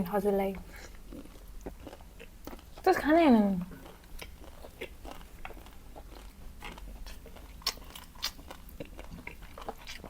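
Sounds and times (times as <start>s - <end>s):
wet chewing: 0.2s - 10.0s
crisp crunching while eating: 0.7s - 10.0s.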